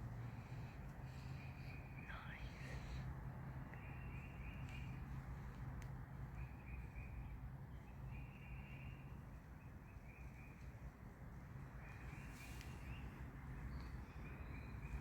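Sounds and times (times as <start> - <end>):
low background rumble: 0.0 - 8.2
faint birds singing: 0.0 - 15.0.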